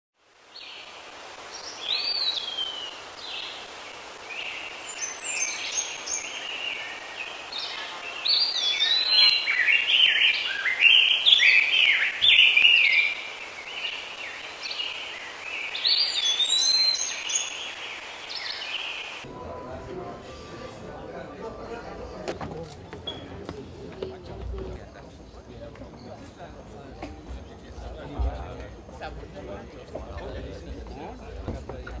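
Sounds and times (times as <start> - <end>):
birds singing and calling: 1.5 - 19.2.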